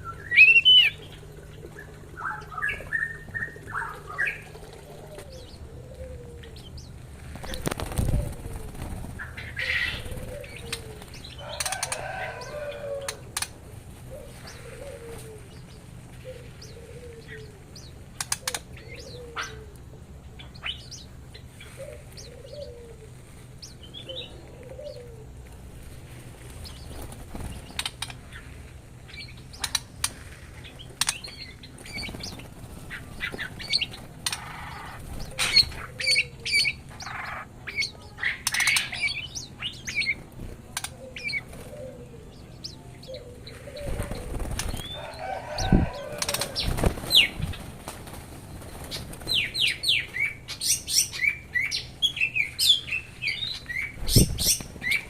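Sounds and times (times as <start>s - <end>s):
birds chirping and calling: 0.0s - 55.0s
birds flapping wings: 7.1s - 16.6s, 25.5s - 28.4s, 29.5s - 36.1s, 43.5s - 50.4s, 53.9s - 55.0s.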